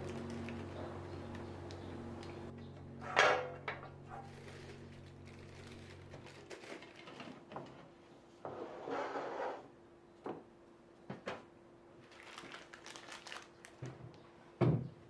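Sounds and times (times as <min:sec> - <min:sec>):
steady low hum: 0:00.0 - 0:06.3
rustling scrape: 0:04.1 - 0:07.8, 0:08.5 - 0:09.6.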